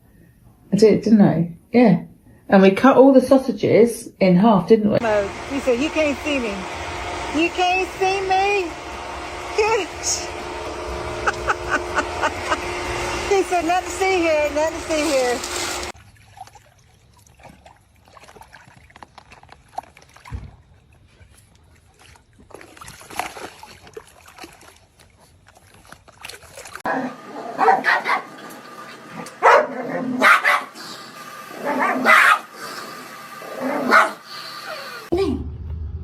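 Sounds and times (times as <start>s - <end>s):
dog barking: 26.9s - 28.3s, 29.4s - 30.8s, 31.6s - 32.5s, 33.8s - 34.2s.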